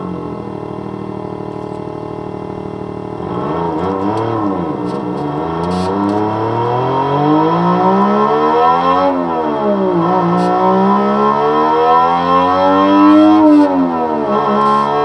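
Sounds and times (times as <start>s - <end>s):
electronic engine sound accelerating: 3.2s - 15.0s.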